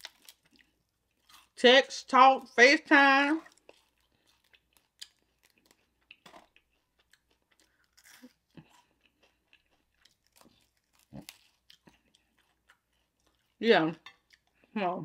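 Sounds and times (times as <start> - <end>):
crunching of crispy chicken: 0.0 - 1.6, 3.5 - 13.6.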